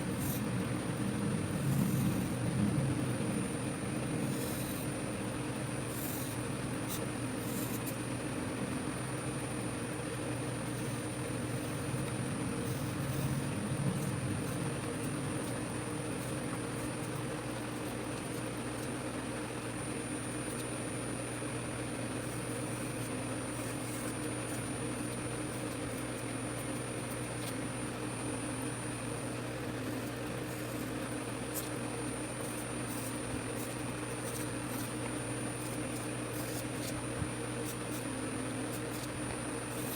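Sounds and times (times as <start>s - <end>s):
machine hum with high whine: 0.0s - 39.9s.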